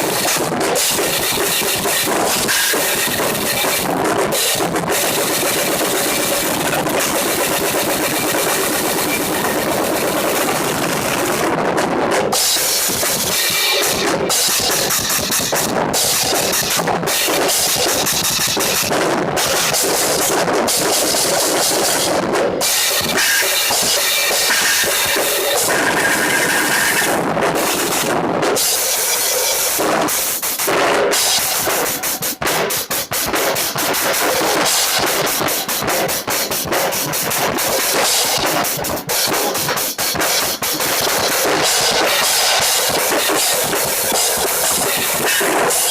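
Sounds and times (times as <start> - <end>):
cymbals ringing: 0.0 - 11.4, 12.3 - 30.6
drums played hard: 0.0 - 45.9.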